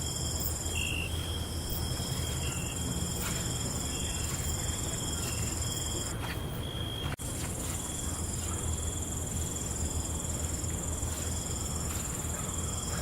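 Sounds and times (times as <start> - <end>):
short insect chirps: 0.0 - 6.1
crickets trilling: 0.0 - 13.0.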